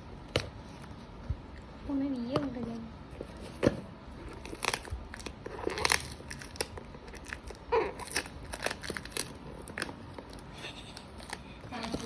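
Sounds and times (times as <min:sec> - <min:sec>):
packaging crinkling: 0:04.2 - 0:12.0.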